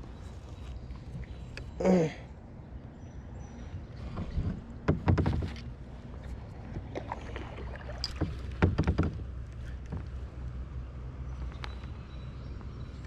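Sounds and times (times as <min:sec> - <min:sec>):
moving water rumbling: 0:00.0 - 0:13.0
wind: 0:00.0 - 0:13.0
paddle strokes splashing: 0:04.0 - 0:10.3.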